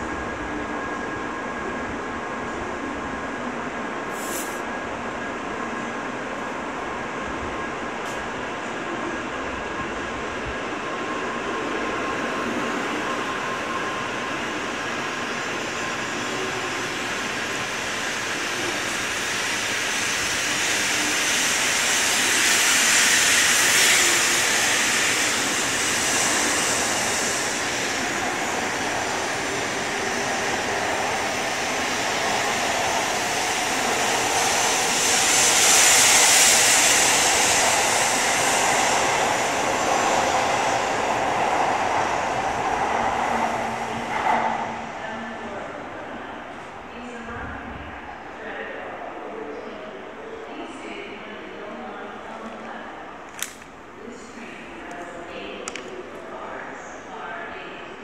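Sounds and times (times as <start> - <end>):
high-speed train rushing past: 0.0 - 58.0.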